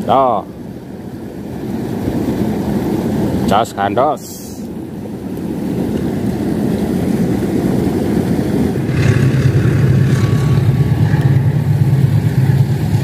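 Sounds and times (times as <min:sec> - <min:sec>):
diesel train engine drone: 0:00.0 - 0:13.0.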